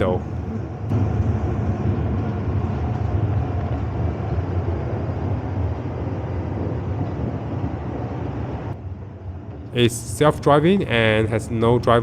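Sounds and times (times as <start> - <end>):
faint steady whine: 0.0 - 12.0
shuttle train low rumble: 0.0 - 12.0.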